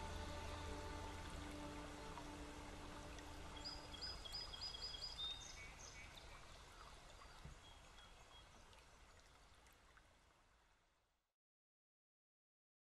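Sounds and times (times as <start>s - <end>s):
soft outdoor hiss: 0.0s - 11.2s
bird chirping: 3.5s - 8.6s.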